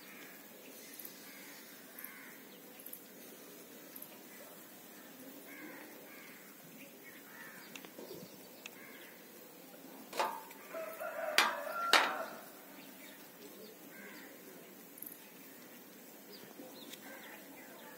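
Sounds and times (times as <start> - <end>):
sharp knocks: 10.2 - 10.5, 11.4 - 12.4.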